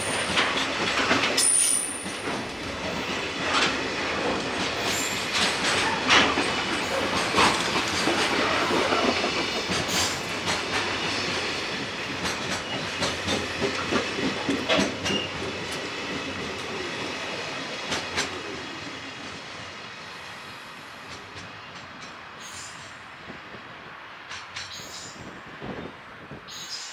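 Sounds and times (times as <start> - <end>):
train wheels knocking over rail joints: 0.0 - 17.2.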